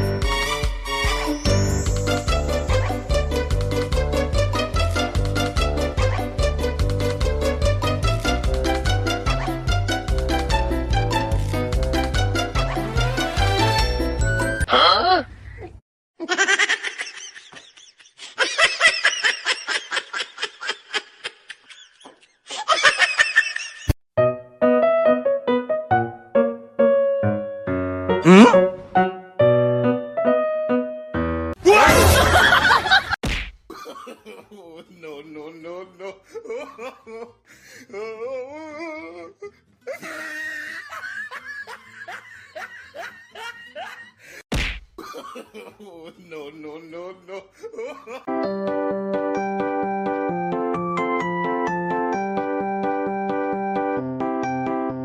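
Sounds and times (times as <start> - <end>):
piano music: 1.4 - 14.7, 24.2 - 31.6, 48.3 - 55.0
high-pitched giggling laughter: 16.2 - 23.9.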